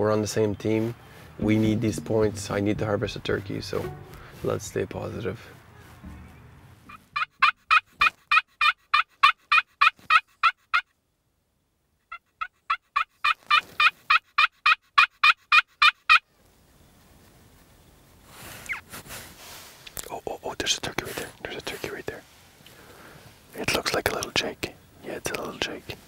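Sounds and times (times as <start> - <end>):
turkey yelping: 6.9 - 10.8, 12.1 - 16.2.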